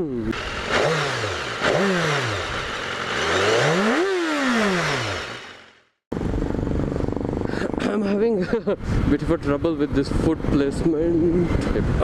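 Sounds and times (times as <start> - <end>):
motorcycle engine revving: 0.3 - 7.4.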